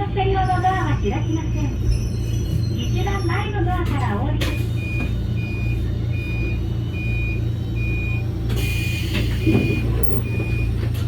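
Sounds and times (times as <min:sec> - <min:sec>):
train low hum: 0:00.0 - 0:11.0
short high warning beeps: 0:07.0 - 0:10.7.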